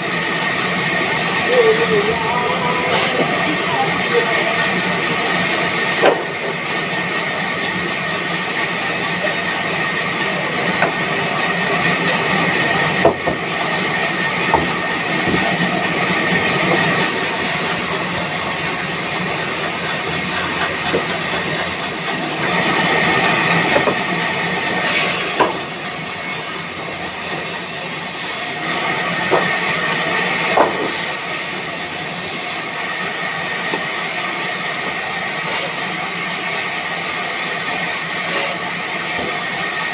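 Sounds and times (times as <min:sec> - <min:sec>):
sawmill machinery hiss: 0:00.0 - 0:39.9
steady high tone: 0:01.1 - 0:05.4.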